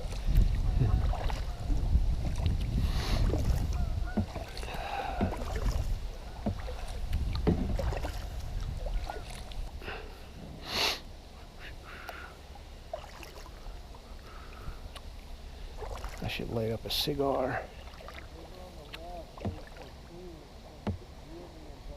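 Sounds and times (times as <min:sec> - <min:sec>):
wind rumble on microphone: 0:00.0 - 0:10.7
paddle strokes in water: 0:00.0 - 0:21.9
small splashes and clicks: 0:02.2 - 0:09.8, 0:15.8 - 0:16.4, 0:17.8 - 0:20.0.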